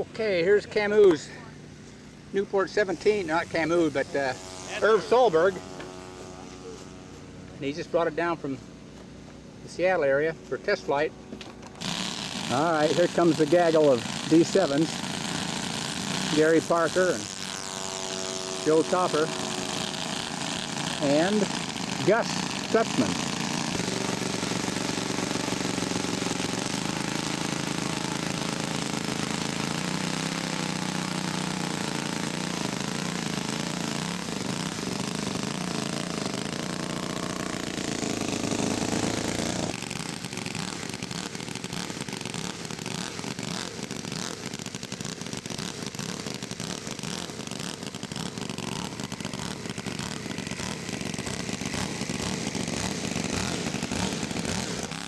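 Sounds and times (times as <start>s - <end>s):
model aircraft engines running: 0.0s - 55.0s.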